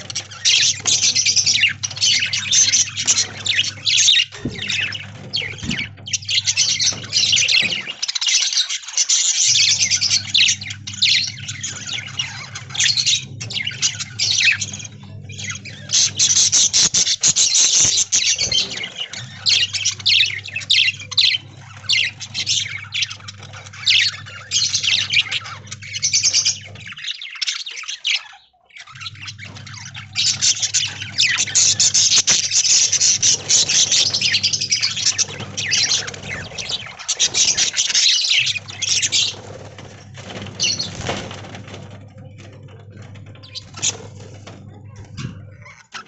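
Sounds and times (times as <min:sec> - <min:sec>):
budgerigars chirping and chattering: 0:00.0 - 0:46.0
low steady hum: 0:09.4 - 0:27.0.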